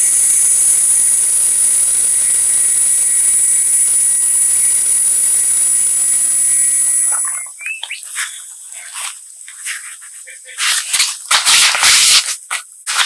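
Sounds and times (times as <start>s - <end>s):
air inflator hissing and whining: 0.0s - 7.5s.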